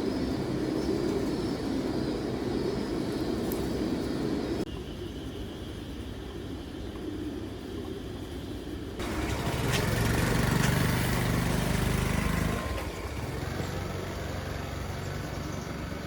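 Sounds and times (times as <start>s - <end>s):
engine running: 9.0s - 16.0s.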